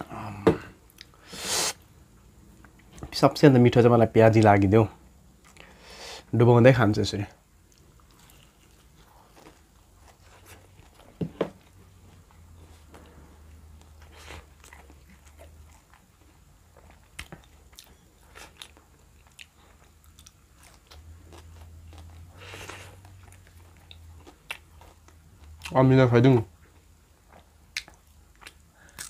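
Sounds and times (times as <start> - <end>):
chewing with wet clicks: 7.6 - 9.9, 13.8 - 25.8, 26.6 - 29.0.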